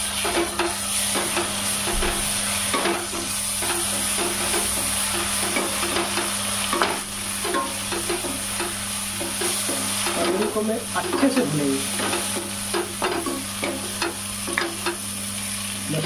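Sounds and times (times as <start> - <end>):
food sizzling in a pot: 0.0 - 16.0.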